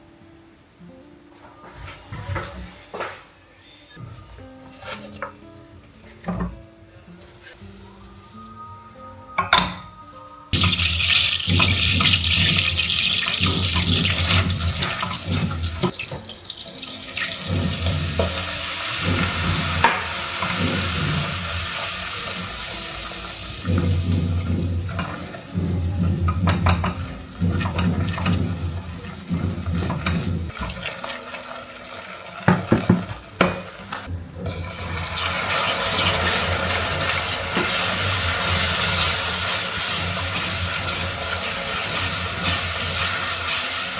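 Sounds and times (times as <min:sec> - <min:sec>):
dishes knocking: 0:09.4 - 0:10.0, 0:10.6 - 0:16.3, 0:19.0 - 0:21.4, 0:23.6 - 0:30.8, 0:32.5 - 0:33.7
tap water running into sink: 0:10.6 - 0:43.9.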